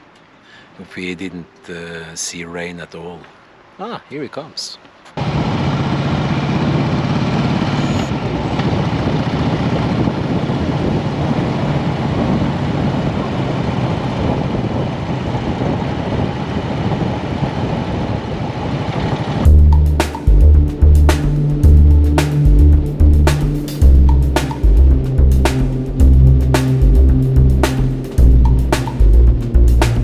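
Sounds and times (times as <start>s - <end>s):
wind noise: 8.0s - 30.0s
motorcycle engine running: 19.5s - 30.0s.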